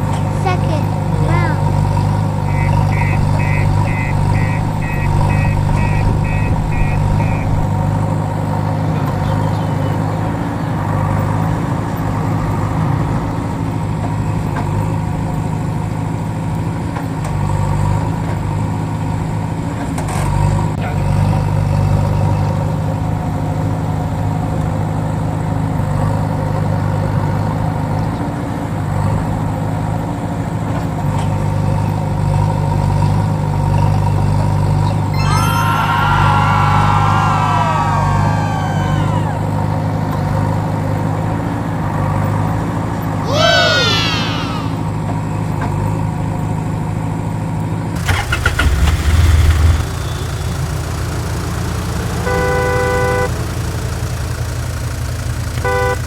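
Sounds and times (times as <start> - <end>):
diesel engine idling: 0.0 - 10.0, 48.0 - 56.0
rapid electronic beeping: 2.5 - 7.8, 48.0 - 56.0.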